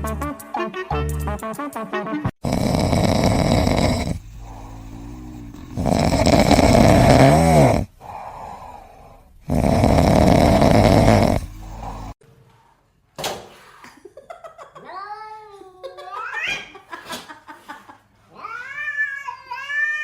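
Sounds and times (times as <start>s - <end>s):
pet snoring loudly: 2.4s - 8.2s, 9.4s - 12.2s
quiet breaths: 2.4s - 14.0s.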